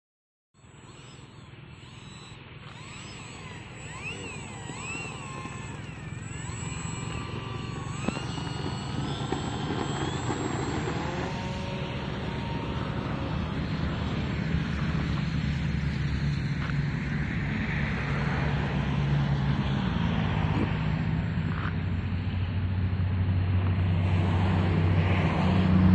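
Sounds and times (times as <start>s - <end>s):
model airplane motor whine: 0.6s - 25.9s.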